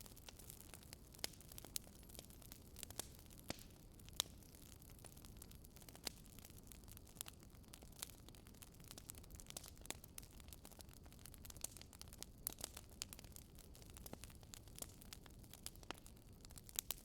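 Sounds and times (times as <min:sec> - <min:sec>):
small snaps and pops: 0:00.0 - 0:17.0
wood fire crackling: 0:00.0 - 0:17.0.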